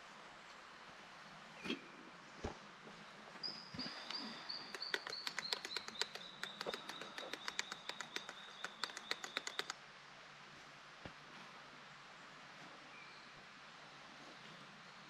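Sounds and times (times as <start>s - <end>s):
bird calling sharp high notes: 4.1s - 9.7s.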